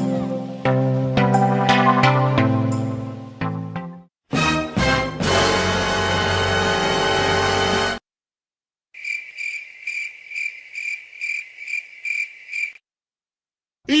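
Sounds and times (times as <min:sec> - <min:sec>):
cricket chirping: 0:09.0 - 0:12.8.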